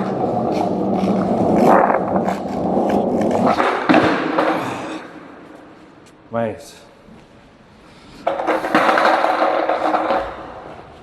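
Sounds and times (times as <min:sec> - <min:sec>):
skateboard clacks: 0:00.0 - 0:05.0, 0:08.2 - 0:11.0
skateboard wheels on wet pavement: 0:00.0 - 0:05.2, 0:08.2 - 0:11.0.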